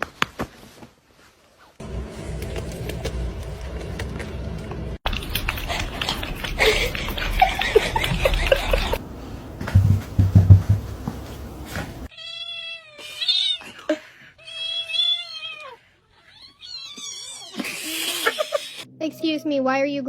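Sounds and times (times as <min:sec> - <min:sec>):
heavy thumps: 0:09.6 - 0:12.1
cat meowing: 0:14.4 - 0:18.6.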